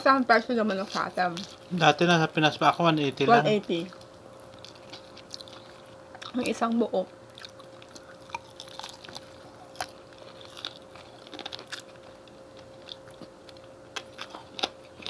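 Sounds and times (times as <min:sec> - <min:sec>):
faint steady hum: 0:00.0 - 0:15.0
chewing with mouth clicks: 0:03.9 - 0:06.6, 0:07.3 - 0:15.0.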